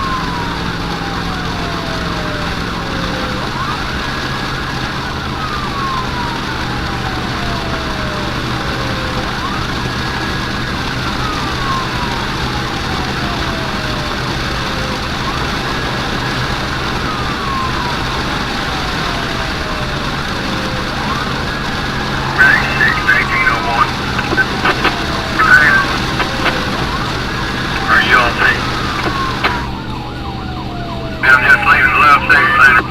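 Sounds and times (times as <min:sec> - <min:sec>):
emergency siren wailing: 0:00.0 - 0:32.9.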